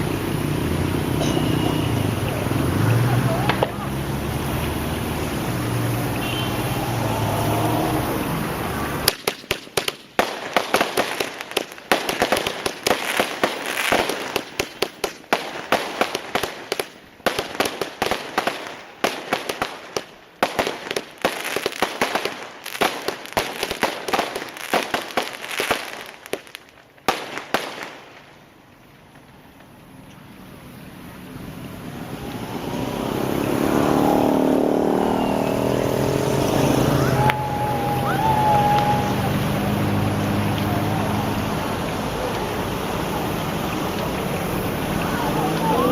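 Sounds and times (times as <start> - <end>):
fireworks firing sharp shots: 3.4 - 3.9, 8.8 - 28.6.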